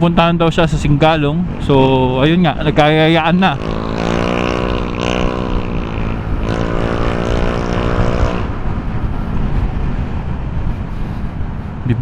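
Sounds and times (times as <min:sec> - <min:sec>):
road noise: 0:00.0 - 0:12.0
wind noise: 0:00.0 - 0:12.0
motor scooter engine running: 0:02.8 - 0:09.2.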